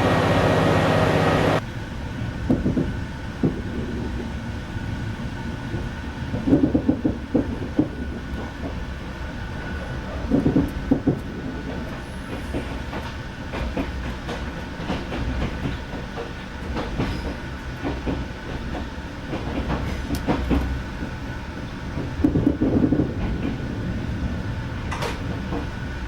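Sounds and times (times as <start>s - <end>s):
train carriage rumbling: 0.0s - 26.0s
wheels clacking over rail joints: 5.7s - 25.9s.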